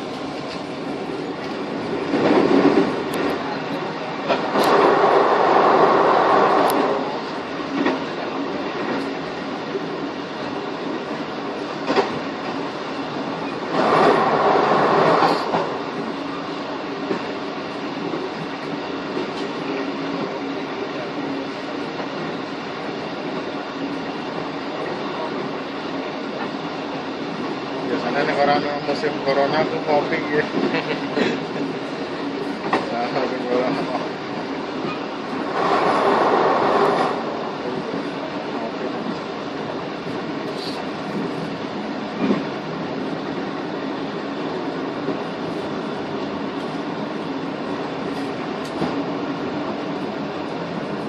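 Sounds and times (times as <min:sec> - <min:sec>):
train wheels rumbling on rails: 0:00.0 - 0:51.0
sharp clicks of train wheels: 0:01.4 - 0:09.3, 0:11.8 - 0:12.6, 0:13.2 - 0:16.4, 0:30.2 - 0:33.0, 0:34.8 - 0:41.4, 0:47.8 - 0:49.1.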